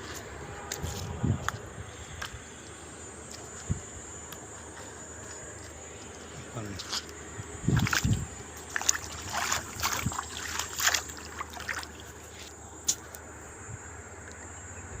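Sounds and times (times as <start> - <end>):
water splashing: 7.7 - 13.0.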